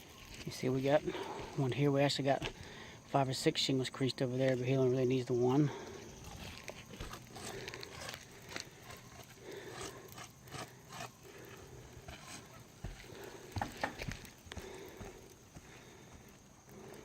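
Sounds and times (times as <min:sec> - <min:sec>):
footsteps on shingle roof: 0:00.2 - 0:02.8, 0:05.8 - 0:09.6, 0:10.5 - 0:16.9.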